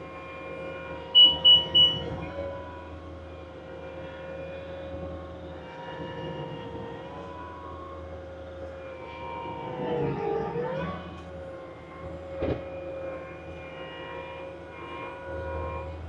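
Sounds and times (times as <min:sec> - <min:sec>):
loader diesel engine whining: 0:00.0 - 0:10.3.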